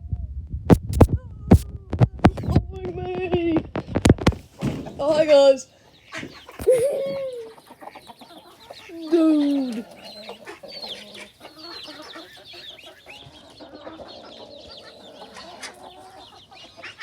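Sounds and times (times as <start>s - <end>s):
chickens clucking: 1.0s - 17.0s
high peeping calls: 5.2s - 17.0s.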